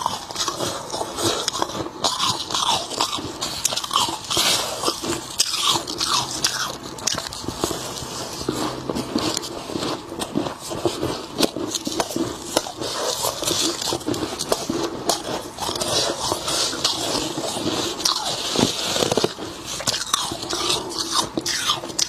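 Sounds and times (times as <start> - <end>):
frost crunching while chewed: 0.0 - 22.0.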